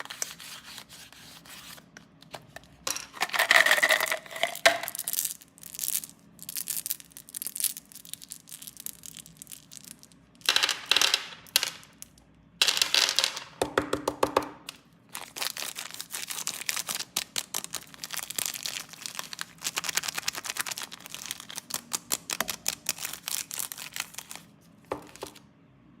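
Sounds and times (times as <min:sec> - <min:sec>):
plastic wrappers crinkling and tearing: 0:03.4 - 0:10.2, 0:15.1 - 0:25.4.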